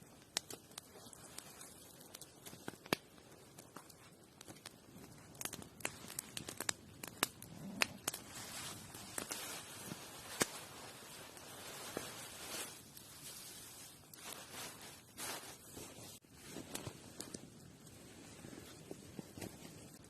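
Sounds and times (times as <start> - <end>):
faint rustling and handling: 8.2 - 20.0.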